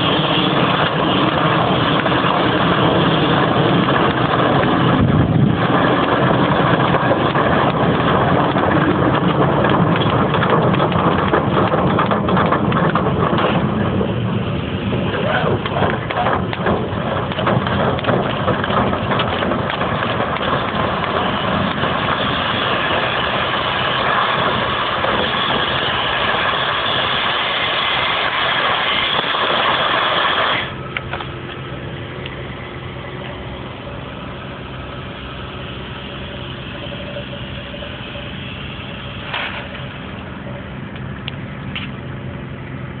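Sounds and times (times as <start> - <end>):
low machine hum: 0.0 - 43.0
machine rushing noise: 0.0 - 43.0.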